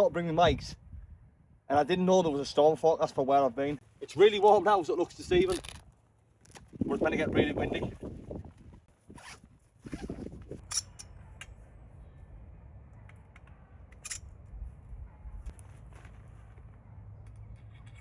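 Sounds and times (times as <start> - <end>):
wind buffeting microphone: 0.4 - 1.6, 6.6 - 10.8.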